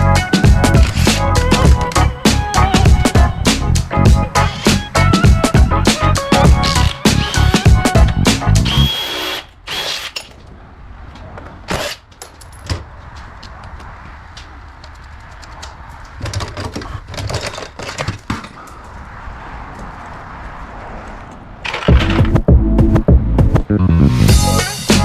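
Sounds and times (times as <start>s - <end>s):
music with a beat: 0.0s - 8.7s, 22.0s - 25.0s
power drill running in bursts: 8.7s - 10.2s.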